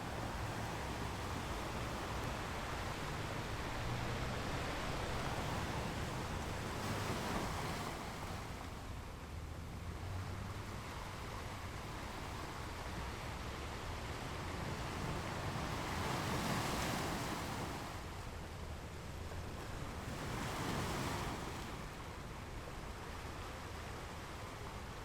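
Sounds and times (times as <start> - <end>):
ocean surf: 0.0 - 25.0
waves breaking: 0.0 - 25.0.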